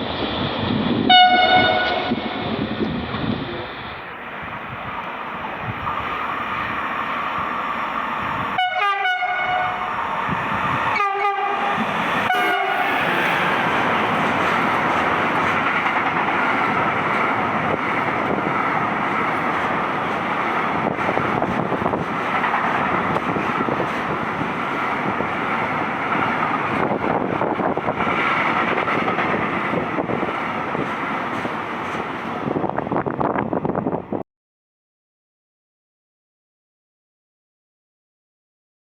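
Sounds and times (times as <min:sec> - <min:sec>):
train wheel and rail noise: 0:00.0 - 0:34.2
train horn blasts: 0:01.1 - 0:02.5, 0:08.6 - 0:09.9, 0:10.9 - 0:12.9.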